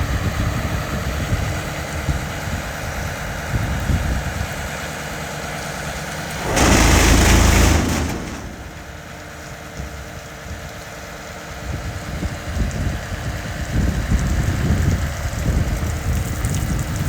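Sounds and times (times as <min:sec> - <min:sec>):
diesel engine idling: 0:00.0 - 0:13.2
loud rush of noise: 0:06.3 - 0:09.3.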